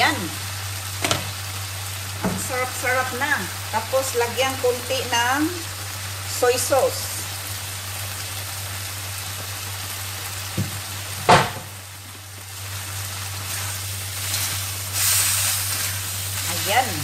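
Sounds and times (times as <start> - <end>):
vegetables sizzling in a wok: 0.0 - 17.0
spatula stirring greens: 12.9 - 17.0.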